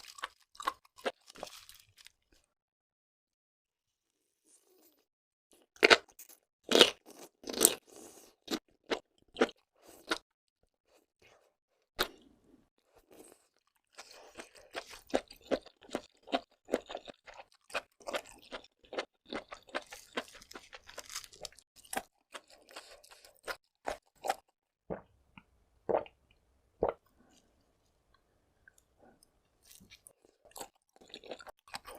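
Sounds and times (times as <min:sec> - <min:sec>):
crunching seafood: 0:00.0 - 0:02.5, 0:13.0 - 0:24.6, 0:29.6 - 0:31.9.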